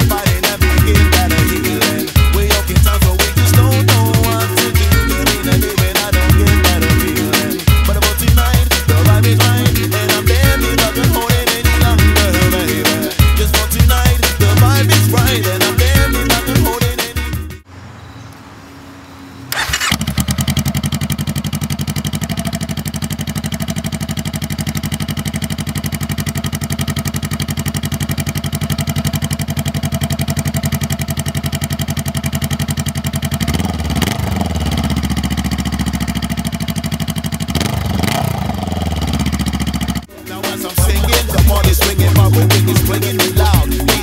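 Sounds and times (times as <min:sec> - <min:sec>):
motorcycle engine revving: 0:00.0 - 0:16.8, 0:17.8 - 0:44.0
motorcycle engine starting and idling: 0:00.0 - 0:16.8, 0:19.3 - 0:44.0.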